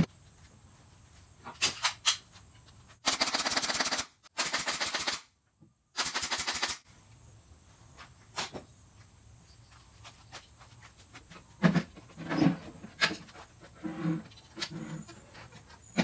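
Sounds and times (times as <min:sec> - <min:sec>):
rapid mechanical clicking: 0:03.0 - 0:05.2, 0:06.0 - 0:06.8.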